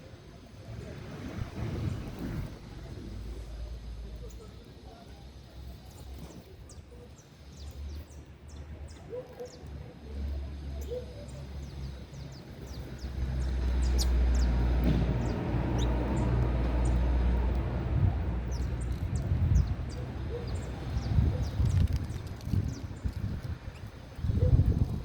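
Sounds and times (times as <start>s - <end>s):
canaries chirping: 5.7s - 25.0s.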